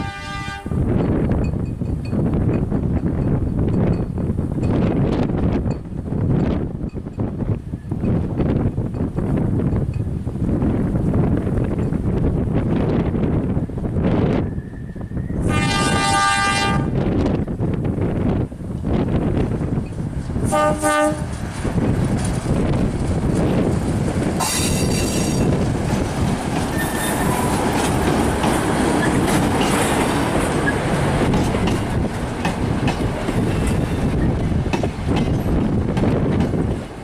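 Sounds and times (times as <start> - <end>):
locomotive horn: 0.0 - 0.8, 15.4 - 17.0, 20.4 - 21.4
train rumbling on rails: 0.0 - 37.0.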